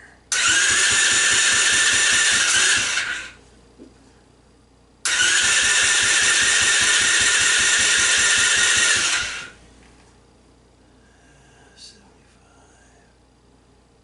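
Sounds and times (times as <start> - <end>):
engine cranking by starter motor: 0.3 - 3.4, 5.0 - 9.6.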